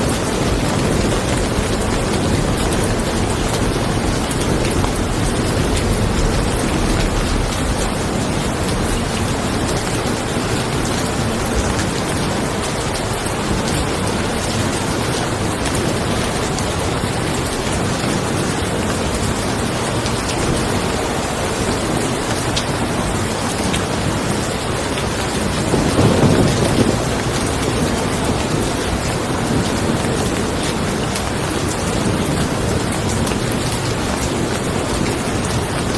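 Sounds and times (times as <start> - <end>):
low thunder rumble: 0.0 - 12.9, 24.2 - 35.9
rain falling on a car: 0.0 - 35.9.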